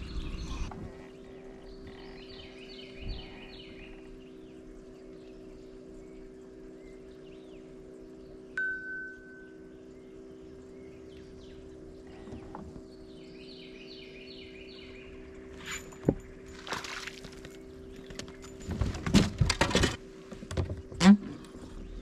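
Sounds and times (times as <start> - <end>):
steady low hum: 0.0 - 22.0
bird chirping: 1.4 - 15.8
gear knocking and scraping in boat: 15.4 - 22.0.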